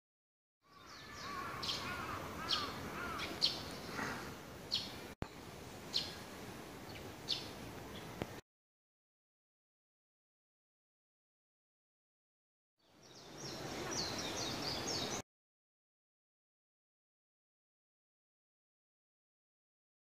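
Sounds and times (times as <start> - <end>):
outdoor background hiss: 0.7 - 8.4, 12.8 - 15.2
small birds chirping: 0.7 - 8.4, 12.8 - 15.2.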